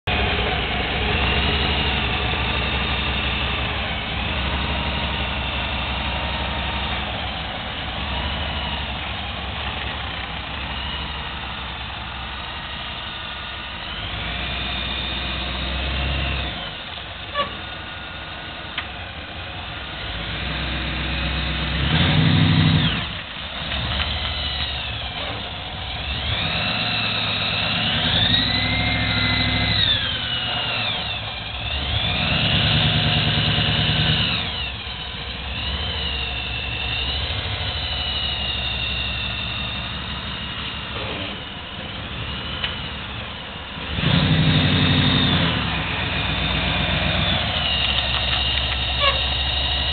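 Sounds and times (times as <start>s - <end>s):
car engine revving while driving: 14.0s - 16.8s, 19.9s - 34.8s, 43.8s - 49.9s.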